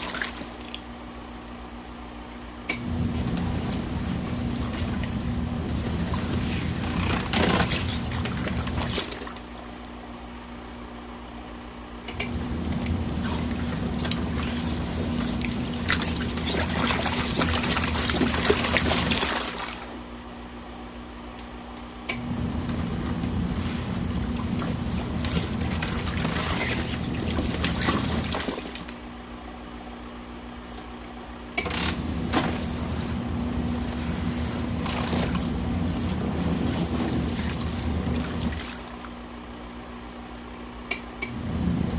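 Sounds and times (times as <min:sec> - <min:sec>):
washing machine sloshing and churning: 0:00.0 - 0:01.1, 0:02.7 - 0:10.7, 0:12.1 - 0:20.6, 0:22.2 - 0:29.4, 0:31.6 - 0:39.8, 0:41.2 - 0:41.9
low hum: 0:40.9 - 0:41.9.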